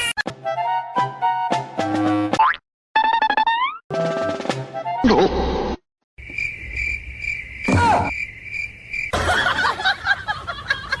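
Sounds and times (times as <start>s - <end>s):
crickets chirping: 6.2s - 11.0s.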